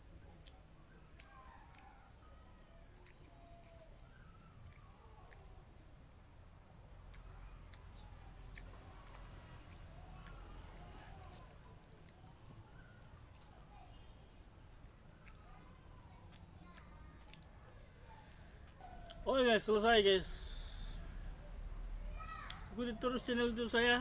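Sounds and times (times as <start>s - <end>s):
insect drone like crickets: 0.0s - 24.0s
faint bird calls: 0.8s - 5.6s.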